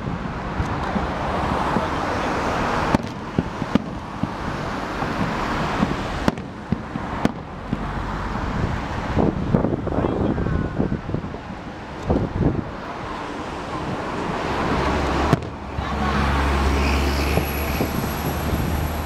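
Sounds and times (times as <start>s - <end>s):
wind rumbling on microphone: 0.0s - 19.0s
fireworks bangs: 2.7s - 8.9s, 13.9s - 19.0s
hissing crackle of fireworks: 2.8s - 8.0s.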